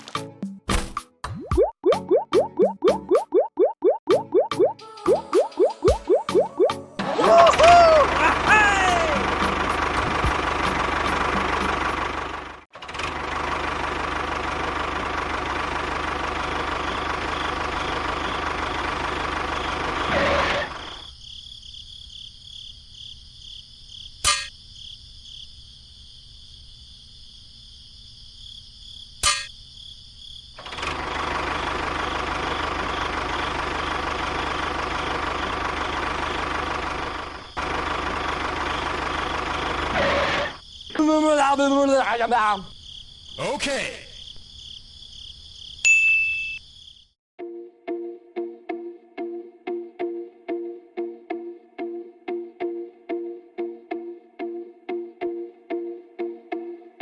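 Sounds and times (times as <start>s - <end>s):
engine running: 6.0s - 21.1s, 30.6s - 40.6s
insect chirping: 20.7s - 30.6s, 37.0s - 37.7s, 40.5s - 47.2s.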